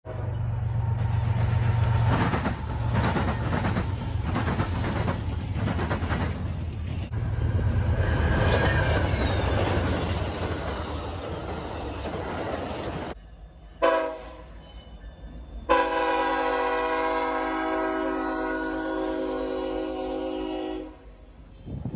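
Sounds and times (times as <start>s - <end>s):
diesel locomotive engine rumble: 0.0s - 21.9s
locomotive air horn: 13.8s - 14.6s, 15.7s - 21.2s.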